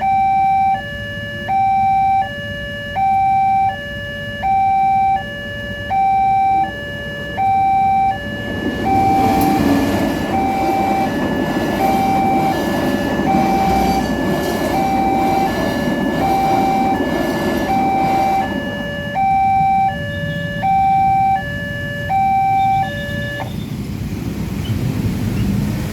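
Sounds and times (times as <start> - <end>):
level crossing alarm two-tone signal: 0.0 - 23.6
train rumble and wheel clacks: 7.7 - 20.7, 22.8 - 25.9.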